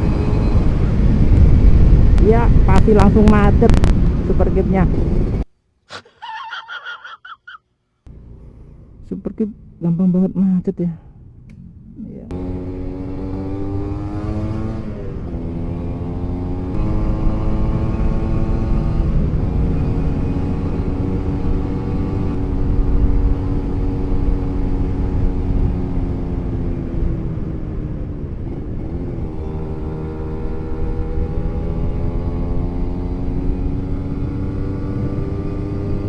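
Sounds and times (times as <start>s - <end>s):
wind and road rumble: 0.0s - 7.4s, 8.0s - 36.0s.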